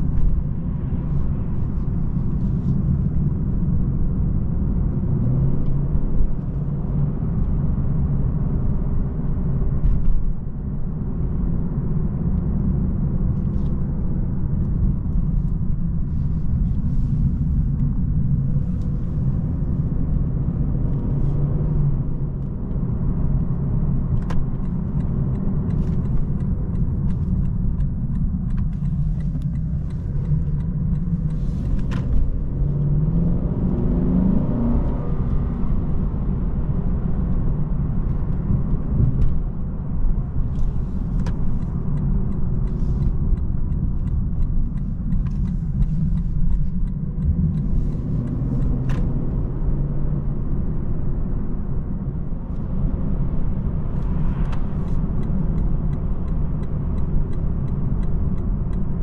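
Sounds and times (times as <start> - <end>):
car engine drone: 0.0 - 59.0
road rumble: 0.0 - 59.0
light ticks: 23.4 - 33.9, 36.7 - 51.2, 51.8 - 59.0.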